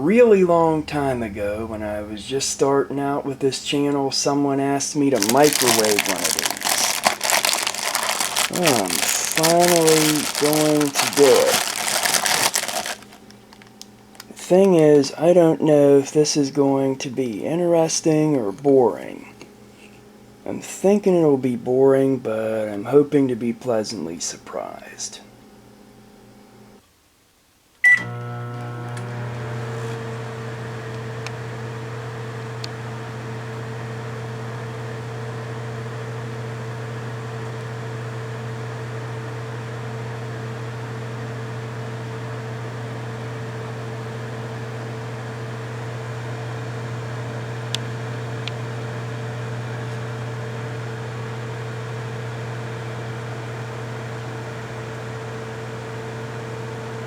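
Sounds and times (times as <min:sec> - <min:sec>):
microwave oven humming: 0:00.0 - 0:16.0, 0:25.2 - 0:26.8, 0:27.8 - 0:57.0
microwave oven beep: 0:27.8 - 0:29.8.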